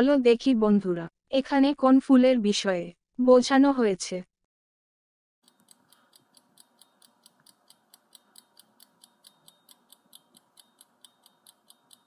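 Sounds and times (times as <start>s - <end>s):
clock ticking: 5.4s - 12.0s.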